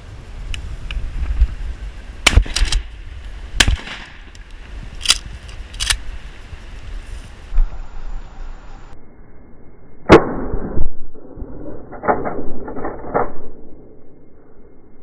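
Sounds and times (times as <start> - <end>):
wind rumble on microphone: 0.0 - 9.0.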